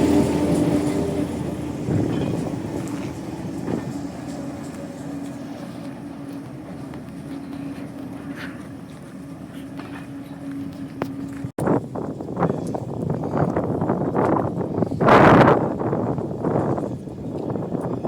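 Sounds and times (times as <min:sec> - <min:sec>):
wheels clicking on rails: 0:00.0 - 0:11.5
diesel train engine hum: 0:00.0 - 0:18.0.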